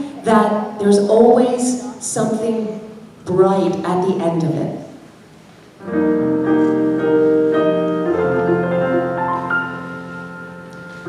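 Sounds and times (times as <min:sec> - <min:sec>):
piano playing slow chords: 0:05.8 - 0:11.0.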